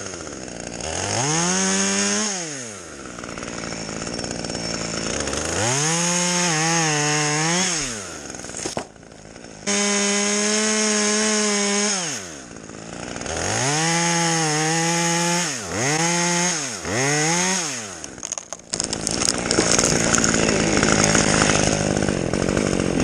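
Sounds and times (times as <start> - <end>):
chainsaw running and revving: 0.0 - 23.0
wood crackling and snapping: 7.8 - 9.0, 18.0 - 23.0.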